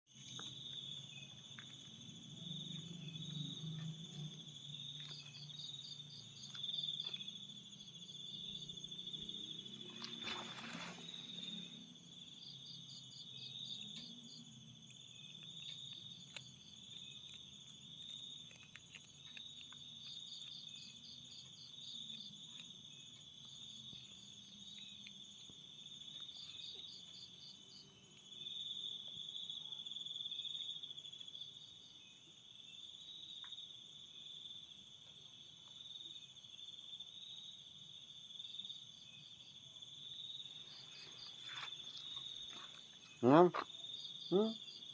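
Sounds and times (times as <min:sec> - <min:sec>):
rapid insect chirps: 0:00.1 - 0:44.9
rustle: 0:09.5 - 0:11.9, 0:40.6 - 0:43.6
insects shrill whine: 0:09.9 - 0:11.9.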